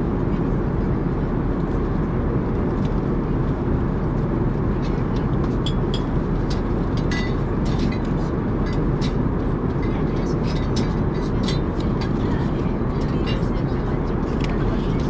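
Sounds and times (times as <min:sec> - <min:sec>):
aircraft cabin rumble: 0:00.0 - 0:15.0
light clicks and clinks: 0:04.9 - 0:09.2.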